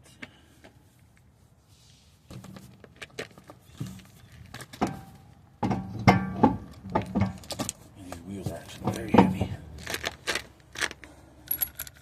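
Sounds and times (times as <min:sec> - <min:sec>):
car wheel knocking and clanking: 0:04.8 - 0:07.7, 0:08.4 - 0:09.6.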